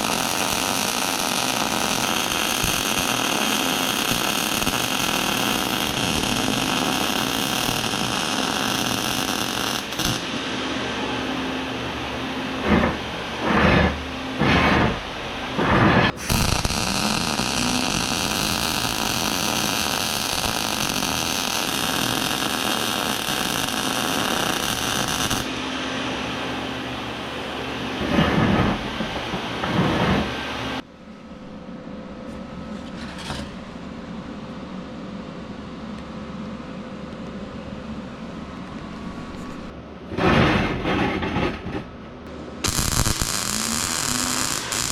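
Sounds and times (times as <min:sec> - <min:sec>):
angle grinder on steel: 0:42.6 - 0:44.9.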